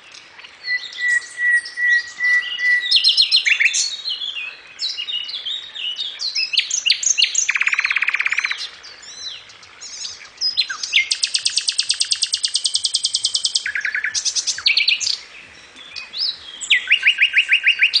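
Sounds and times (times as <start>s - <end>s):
nightingale singing: 0.0s - 18.0s.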